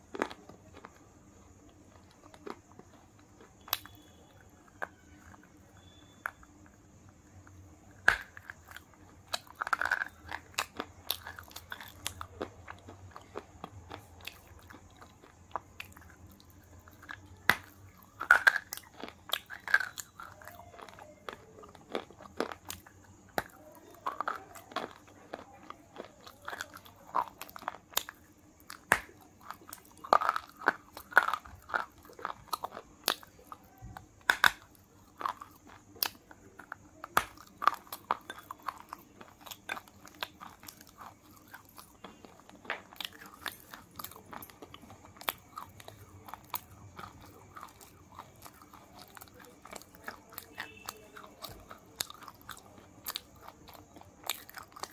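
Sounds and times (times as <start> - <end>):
crunching wafer bar: 0.0 - 6.8, 7.9 - 54.9.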